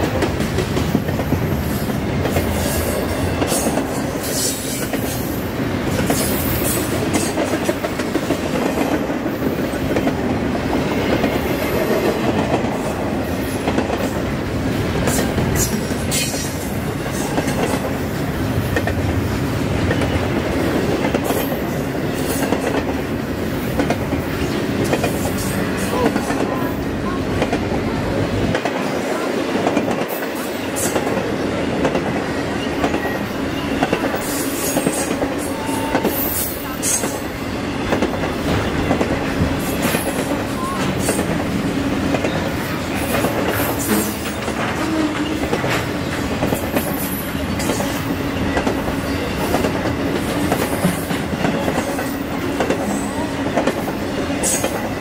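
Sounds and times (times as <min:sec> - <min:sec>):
train wheels clicking over rail joints: 0:00.0 - 0:55.0.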